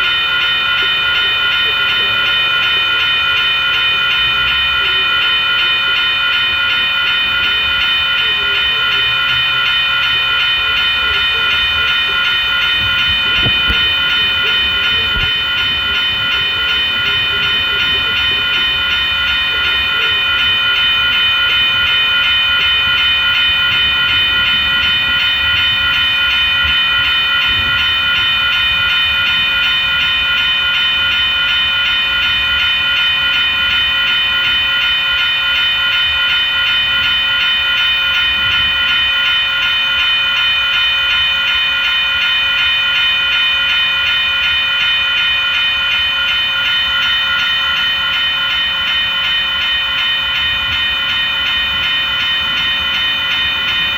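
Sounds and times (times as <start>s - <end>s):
train rumbling past: 0.0s - 40.1s
high-pitched ringing tones: 0.0s - 53.9s.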